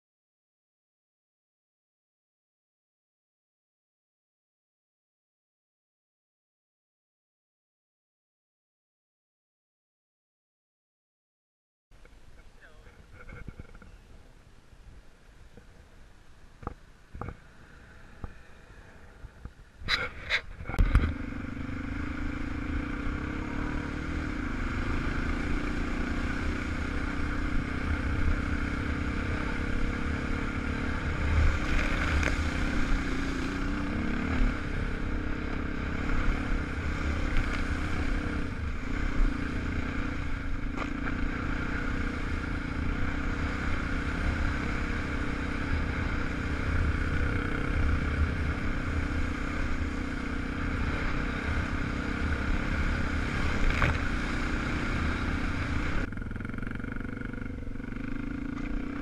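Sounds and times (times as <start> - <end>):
motorcycle engine running: 12.0 - 14.4, 16.6 - 59.0.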